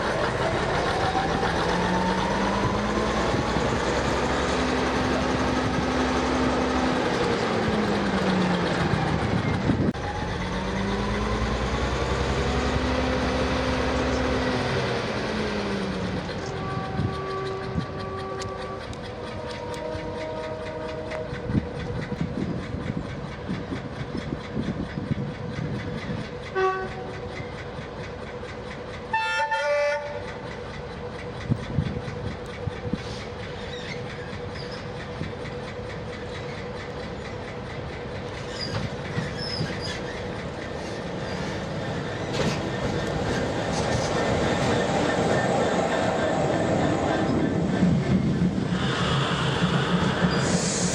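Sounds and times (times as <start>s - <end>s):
diesel locomotive engine: 0.0s - 50.9s
train wheels clattering over rail joints: 0.0s - 50.9s
train horn: 16.3s - 21.5s, 26.5s - 27.2s, 29.1s - 30.3s.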